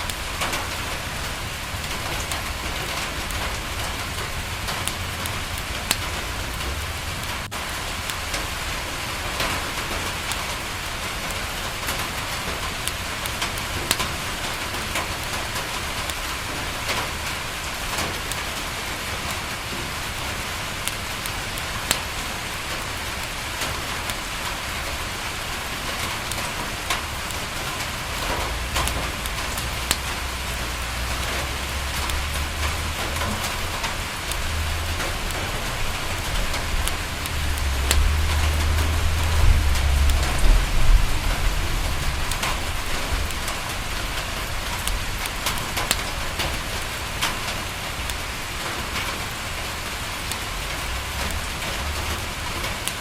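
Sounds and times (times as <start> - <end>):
rain on a window: 0.0 - 53.0
wood fire crackles: 0.0 - 53.0
low rumble: 28.4 - 45.2.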